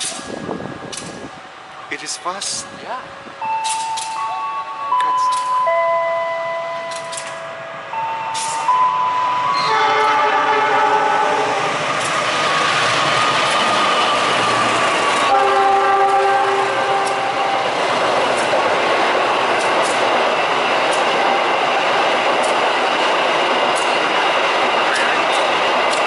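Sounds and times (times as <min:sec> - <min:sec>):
passenger train rushing past: 0:00.0 - 0:26.0
wheels clicking over rail joints: 0:00.8 - 0:01.3, 0:03.5 - 0:04.4, 0:06.8 - 0:07.4, 0:08.2 - 0:08.8, 0:11.9 - 0:26.0
multi-tone train horn: 0:03.6 - 0:12.5, 0:15.2 - 0:17.7.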